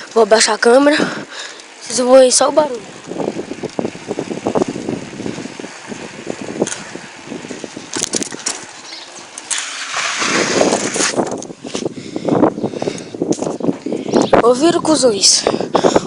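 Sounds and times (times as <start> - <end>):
bike rattling and knocking: 0.0 - 14.6
bicycle tyre skidding: 1.6 - 12.0.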